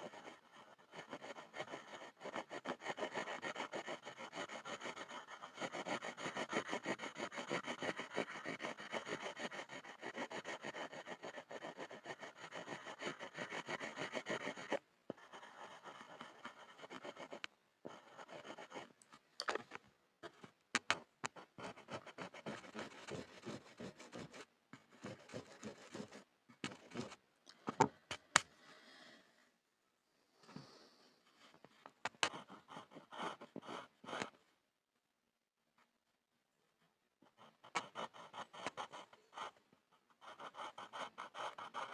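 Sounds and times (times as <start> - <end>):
pencil scribbling on wood: 0.0 - 18.9, 20.2 - 27.2, 32.1 - 34.4, 37.2 - 41.9.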